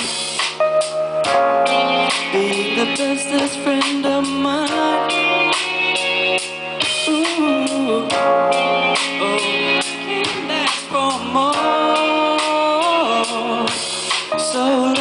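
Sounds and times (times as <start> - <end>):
backing track music: 0.0 - 15.0
man singing pop ballad: 2.1 - 5.6, 6.8 - 15.0.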